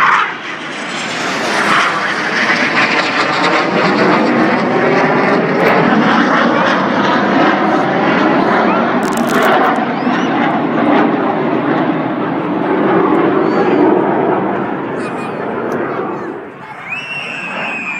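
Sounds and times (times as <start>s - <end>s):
aircraft flying past: 0.0s - 17.9s.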